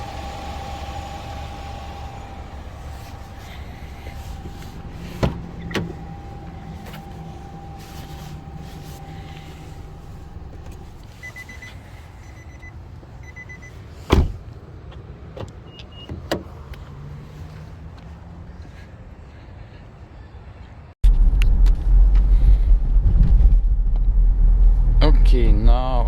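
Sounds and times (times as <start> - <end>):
low motor hum: 0.0 - 14.4, 21.1 - 26.0
high electronic beeps: 11.2 - 13.7.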